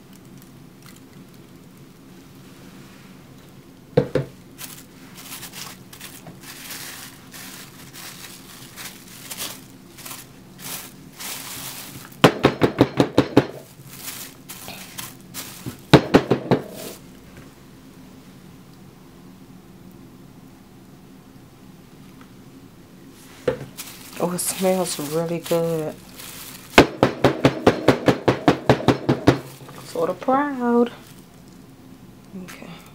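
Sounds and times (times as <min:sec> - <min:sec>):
utensils rustling and scraping: 0:04.4 - 0:12.3, 0:13.5 - 0:16.0, 0:16.6 - 0:17.0, 0:23.2 - 0:27.0, 0:29.4 - 0:31.6.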